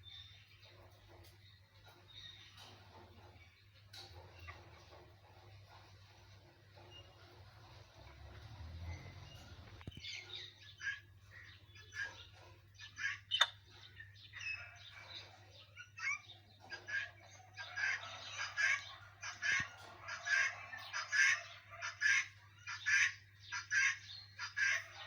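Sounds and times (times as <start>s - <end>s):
parrot squawking: 16.8s - 25.0s.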